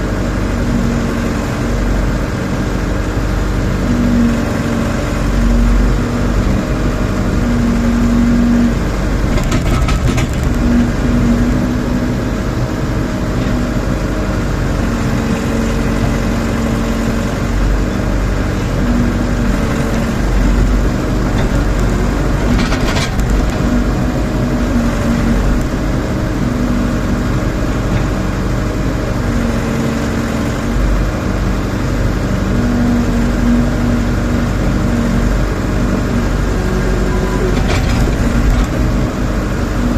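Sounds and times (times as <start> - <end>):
backhoe diesel engine running: 0.0 - 39.9
short clatters: 9.3 - 10.8, 21.3 - 23.8.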